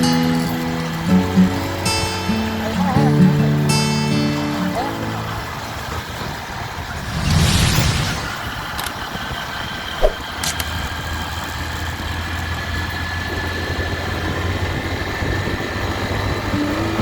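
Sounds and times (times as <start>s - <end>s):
motorcycle engine running: 9.0s - 17.0s.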